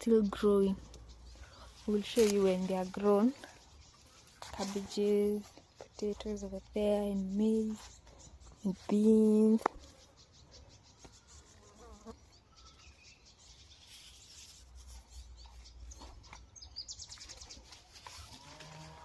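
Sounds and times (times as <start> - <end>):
insects buzzing and chirring: 0.0 - 13.3.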